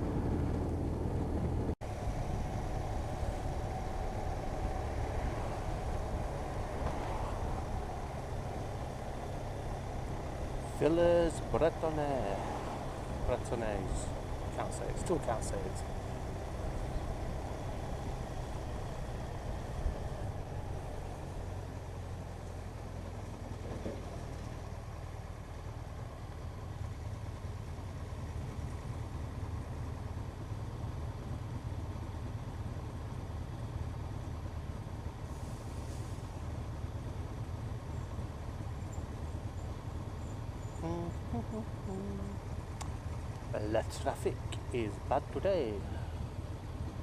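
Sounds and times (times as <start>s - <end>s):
motorcycle engine running: 0.0s - 35.1s.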